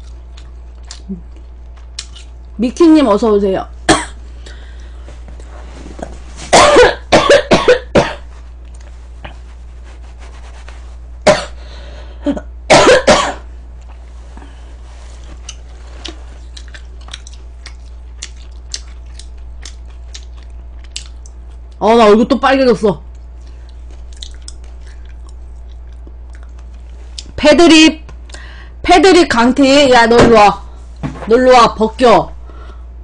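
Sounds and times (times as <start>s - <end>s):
person coughing: 3.9s - 4.2s, 6.5s - 8.3s, 11.2s - 11.6s, 12.2s - 13.5s.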